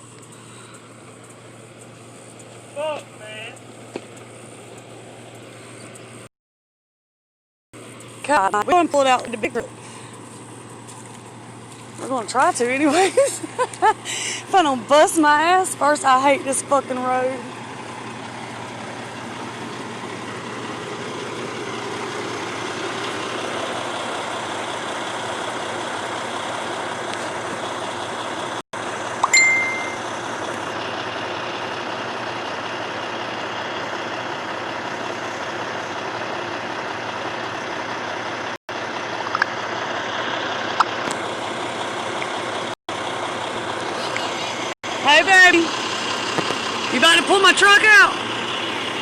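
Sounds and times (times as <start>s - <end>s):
truck engine running: 0.0s - 6.3s, 7.8s - 49.0s
brief high ding: 29.2s - 30.0s.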